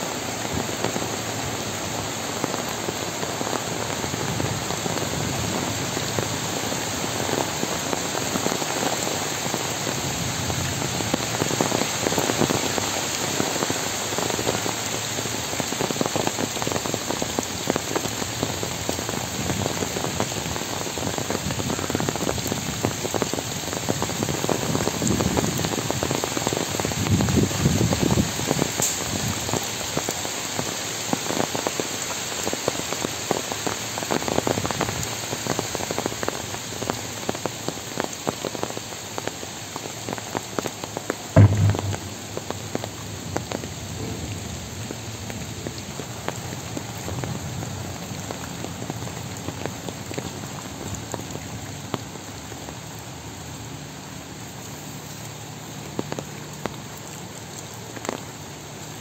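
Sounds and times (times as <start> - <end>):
heavy rain through trees: 0.0 - 59.0.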